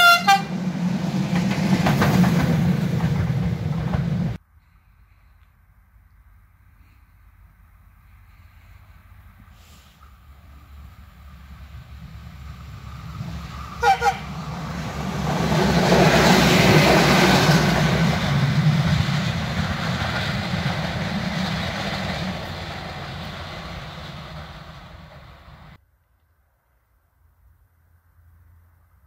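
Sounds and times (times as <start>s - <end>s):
train horn blasts: 0.0s - 0.6s, 13.8s - 14.5s
train rumbling past: 0.0s - 4.4s, 6.7s - 25.8s.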